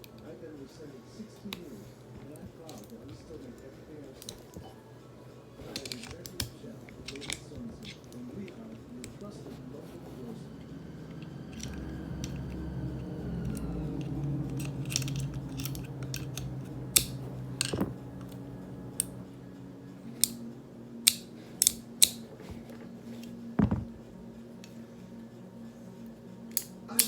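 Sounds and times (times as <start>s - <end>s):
low steady hum: 0.0s - 27.0s
metallic clicks of revolver parts: 20.2s - 20.4s, 21.0s - 22.2s, 26.5s - 27.0s.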